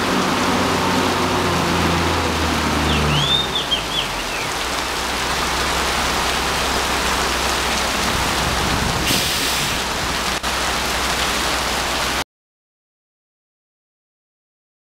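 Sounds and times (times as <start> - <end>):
heavy rain on pavement and roofs: 0.0 - 12.2.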